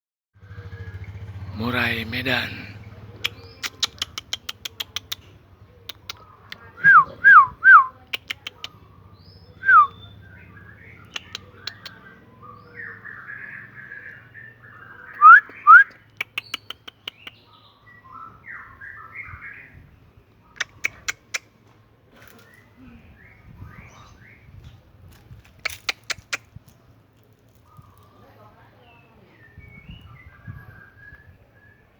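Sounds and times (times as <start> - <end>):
bird chattering: 0.6 - 17.7, 20.5 - 21.6, 25.2 - 26.9
bird whistling song: 6.0 - 8.3, 9.2 - 19.9, 29.3 - 31.9.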